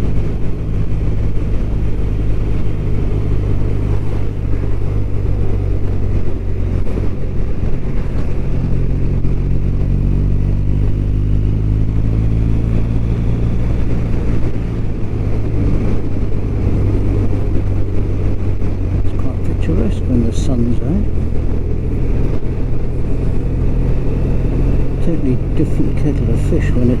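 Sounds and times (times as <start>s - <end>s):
motorcycle engine running: 0.0s - 27.0s
road noise: 0.0s - 27.0s
wind noise: 0.0s - 27.0s.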